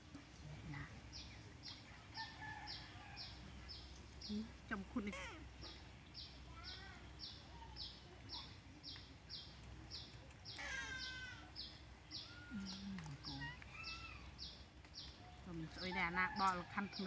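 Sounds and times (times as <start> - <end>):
harsh bird call: 10.5 - 11.6.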